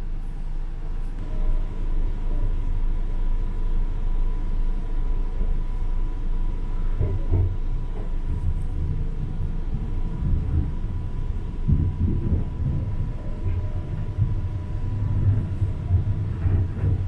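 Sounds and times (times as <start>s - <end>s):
train wheels rumbling on rails: 1.2s - 17.0s.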